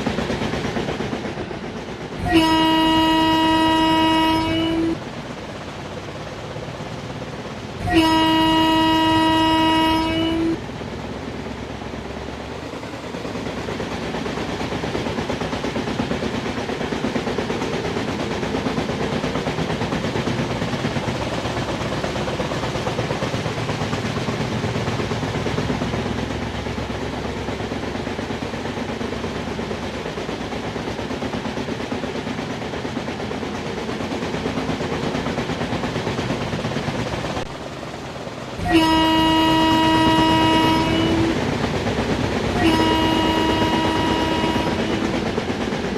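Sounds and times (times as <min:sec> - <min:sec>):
passenger train rumbling: 0:00.0 - 0:45.9
locomotive horn blast: 0:02.2 - 0:05.0, 0:07.8 - 0:10.6, 0:38.6 - 0:41.4, 0:42.5 - 0:45.2.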